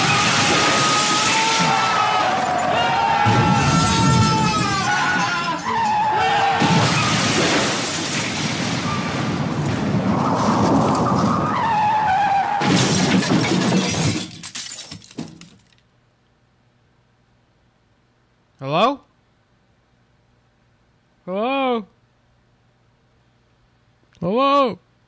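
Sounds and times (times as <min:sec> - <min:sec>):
tyres screeching: 0:00.0 - 0:07.2
glass smashing: 0:00.0 - 0:09.1, 0:12.6 - 0:15.7.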